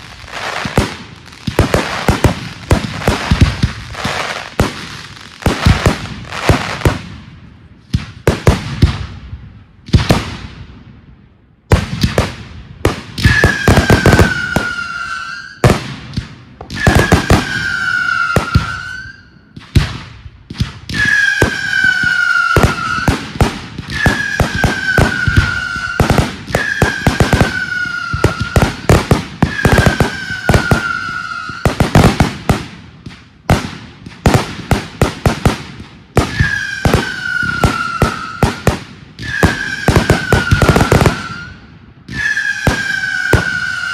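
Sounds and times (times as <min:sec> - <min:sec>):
falling firework whistles: 0:00.0 - 0:07.0, 0:13.2 - 0:32.4, 0:36.1 - 0:43.9
fireworks bangs and crackles: 0:00.0 - 0:43.9.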